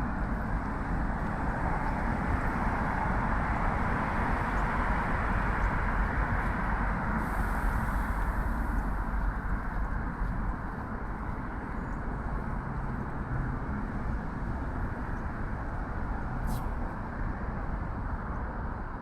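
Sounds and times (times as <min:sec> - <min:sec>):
road traffic hum: 0:00.0 - 0:19.0
brief high hiss: 0:16.4 - 0:16.7.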